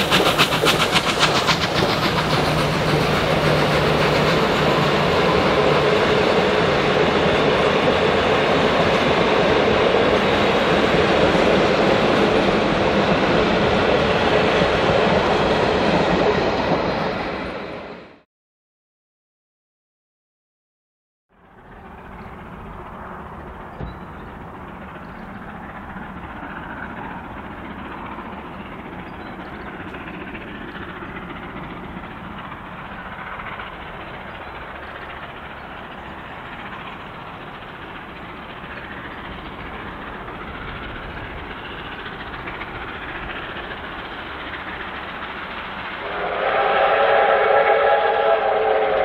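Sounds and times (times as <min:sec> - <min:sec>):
train running on track: 0:00.0 - 0:18.3, 0:21.3 - 0:49.0.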